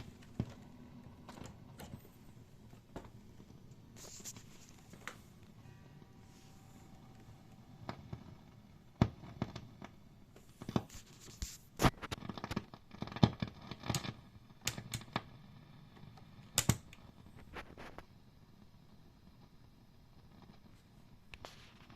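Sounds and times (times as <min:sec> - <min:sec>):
amplifier speaker pops and crackles: 0:07.8 - 0:10.0, 0:11.8 - 0:15.3.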